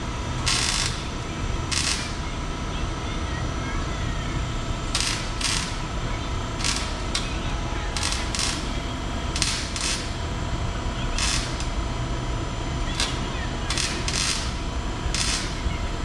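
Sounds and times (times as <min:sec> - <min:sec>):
ratchet wrench clicking: 0:00.3 - 0:02.2, 0:04.9 - 0:05.9, 0:06.6 - 0:10.2, 0:11.2 - 0:11.8, 0:13.0 - 0:15.6.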